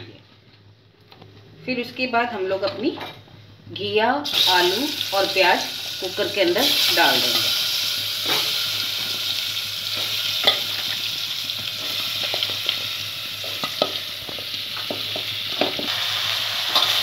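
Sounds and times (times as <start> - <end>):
hot oil sizzling: 4.2 - 17.0.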